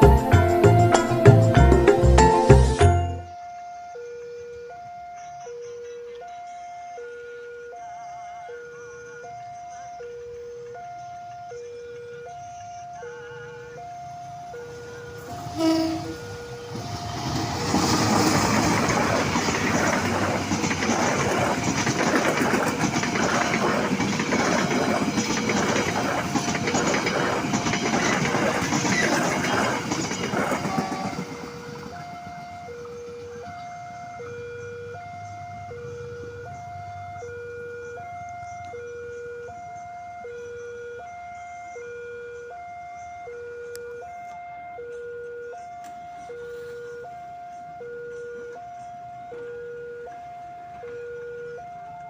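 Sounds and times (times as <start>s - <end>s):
level crossing alarm ding-dong: 2.8s - 16.5s, 31.1s - 46.4s
train wheels clattering on rails: 16.6s - 33.3s.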